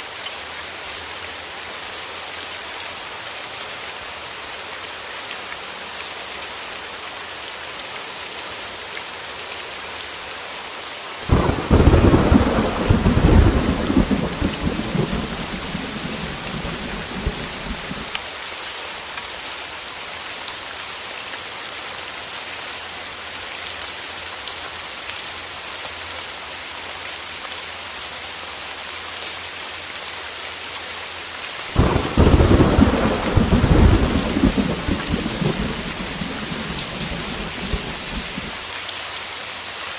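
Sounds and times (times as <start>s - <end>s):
heavy rain falling: 0.0s - 39.9s
thunder rumbling: 11.3s - 18.1s, 31.8s - 38.6s.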